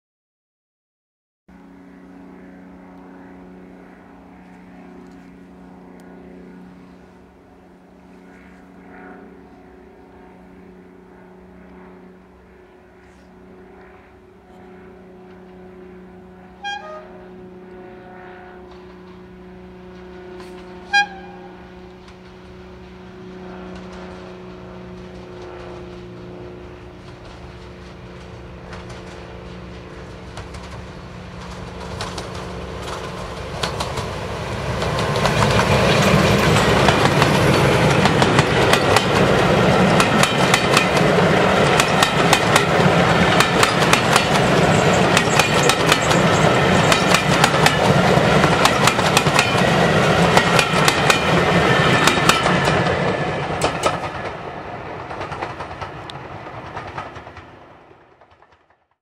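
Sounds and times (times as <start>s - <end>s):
locomotive horn toots: 16.5s - 18.8s, 20.4s - 21.9s
diesel locomotive idling: 18.7s - 58.4s.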